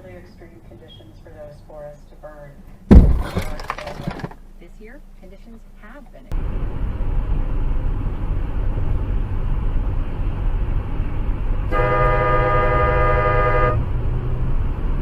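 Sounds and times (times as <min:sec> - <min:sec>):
low vehicle rumble: 0:06.3 - 0:15.0
car horn blast: 0:11.7 - 0:13.9.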